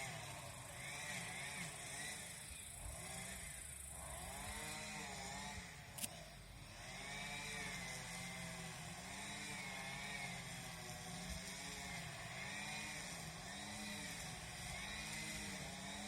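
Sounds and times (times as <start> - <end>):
small engine revving: 0.0 - 16.0.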